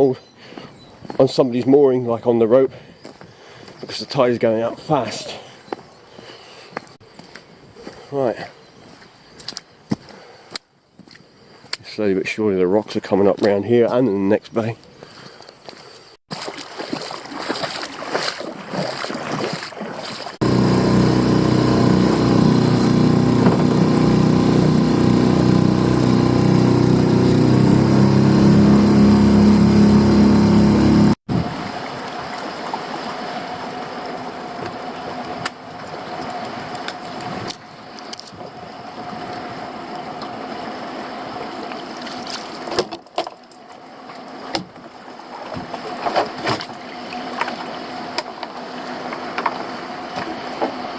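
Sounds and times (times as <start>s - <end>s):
outboard motor running: 16.4s - 31.8s, 43.6s - 50.9s.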